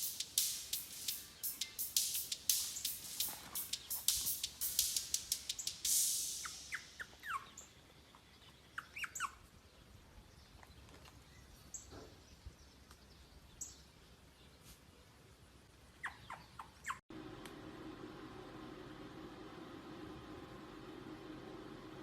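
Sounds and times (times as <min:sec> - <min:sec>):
burst of noise: 0:00.0 - 0:07.0
sharp ticks: 0:00.0 - 0:07.2
small animal squeaking: 0:06.4 - 0:07.7, 0:08.8 - 0:09.4, 0:16.0 - 0:17.0.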